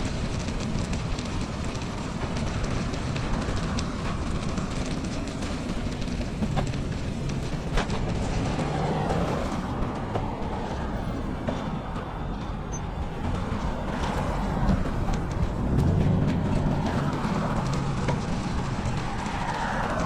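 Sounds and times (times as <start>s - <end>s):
small clicks and ticks: 0.0s - 11.6s
tyres rolling over snow: 0.0s - 20.0s
wind buffeting microphone: 0.0s - 20.0s.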